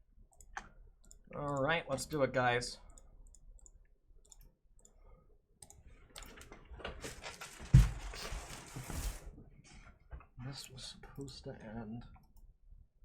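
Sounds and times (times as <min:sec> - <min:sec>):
packaging rustling and crinkling: 0:07.0 - 0:09.3.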